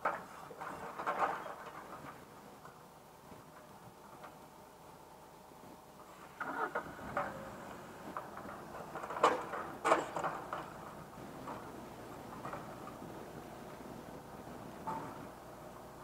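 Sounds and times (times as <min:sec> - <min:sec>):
faint steady hum: 0:01.6 - 0:16.0
logs knocking and clanking: 0:08.1 - 0:13.3.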